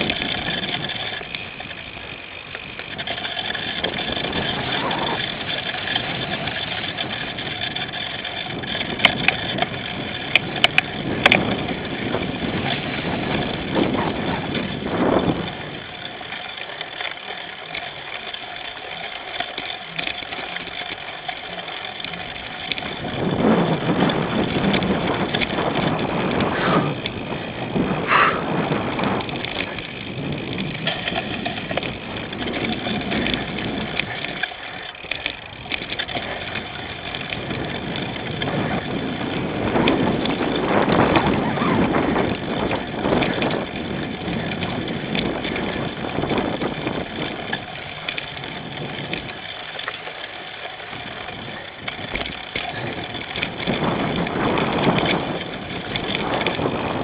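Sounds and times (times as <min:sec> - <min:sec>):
sharp clicks and rattles: 0:00.0 - 0:57.0
tyre and frame rumble: 0:00.0 - 0:57.0
wind rushing over microphone: 0:02.9 - 0:07.9, 0:08.5 - 0:15.9, 0:22.8 - 0:34.4, 0:35.6 - 0:47.7, 0:51.0 - 0:57.0.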